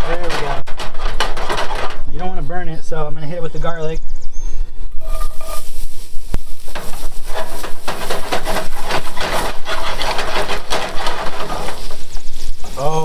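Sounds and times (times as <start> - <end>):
utensil scraping a pan: 0.0 - 2.4, 4.9 - 13.0
garlic sizzling in a pan: 5.0 - 10.2.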